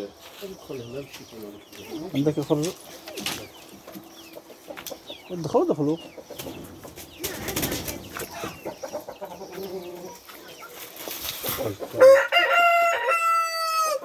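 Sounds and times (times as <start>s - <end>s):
chickens clucking: 0.0s - 14.0s
rooster crowing: 12.0s - 14.0s.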